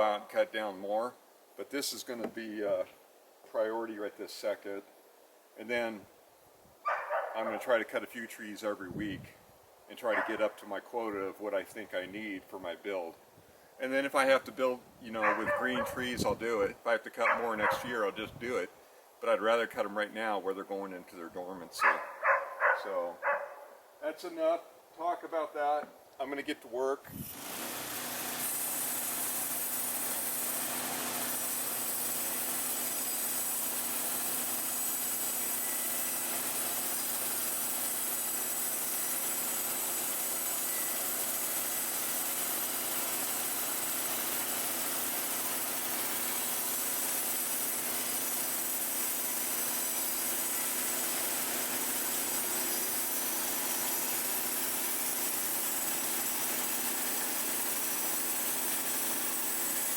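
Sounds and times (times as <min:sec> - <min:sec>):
sawmill gasoline engine running: 0:15.2 - 0:16.0, 0:27.7 - 0:59.9.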